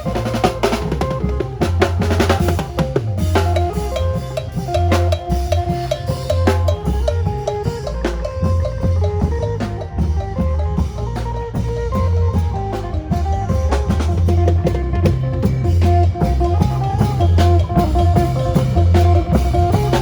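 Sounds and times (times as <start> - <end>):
drum kit: 0.0 - 20.0
heavy pulsing bass line: 0.0 - 20.0
lute picking quick notes: 0.0 - 20.0.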